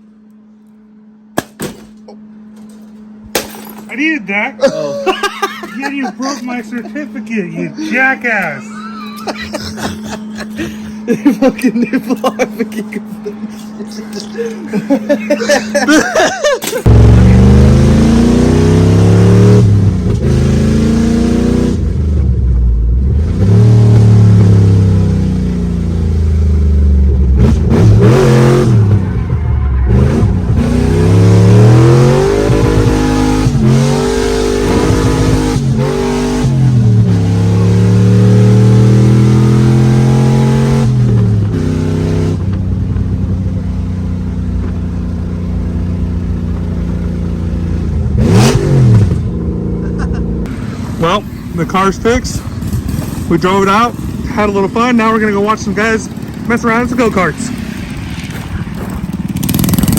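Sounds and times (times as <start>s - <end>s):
car engine revving: 16.8s - 59.9s.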